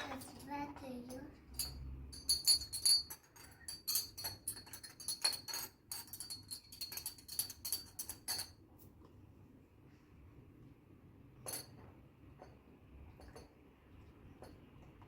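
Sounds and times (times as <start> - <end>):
light clicking and jingling: 0.0 - 8.6.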